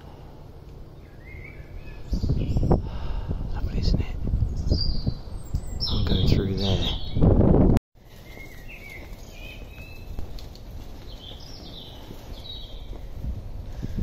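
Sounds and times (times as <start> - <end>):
faint outdoor background noise: 0.0 - 14.0
birds singing: 0.8 - 7.4, 8.0 - 14.0.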